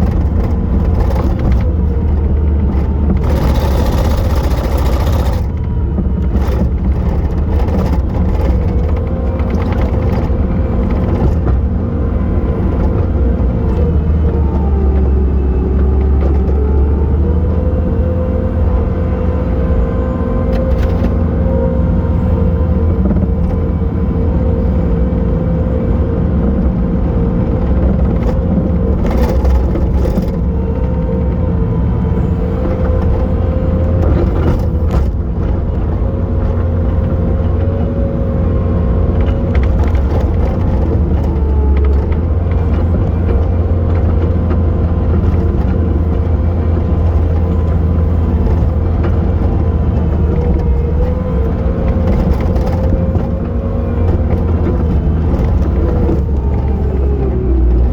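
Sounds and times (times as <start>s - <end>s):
diesel engine running under load: 0.0s - 57.9s.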